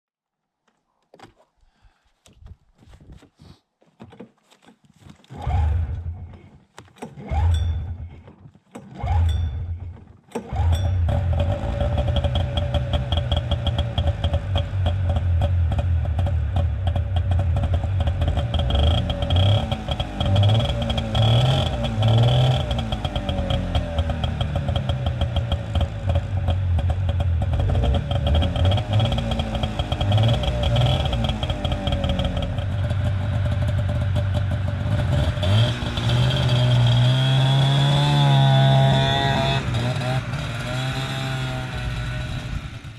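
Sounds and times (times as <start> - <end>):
snowmobile engine starting and revving: 4.6 - 42.9.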